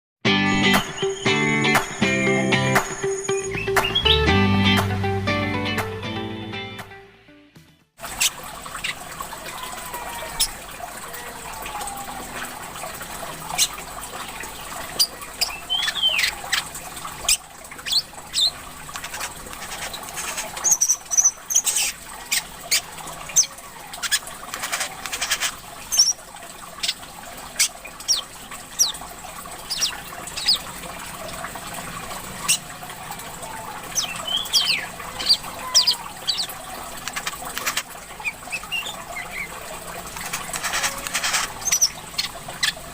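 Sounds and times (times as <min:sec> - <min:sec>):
sunbird chirping and whistling: 0:00.8 - 0:04.3, 0:15.0 - 0:16.7, 0:17.3 - 0:19.9, 0:20.6 - 0:22.4, 0:29.7 - 0:30.6, 0:33.9 - 0:36.5, 0:38.2 - 0:39.5, 0:40.8 - 0:42.8
water trickling: 0:08.0 - 0:42.9.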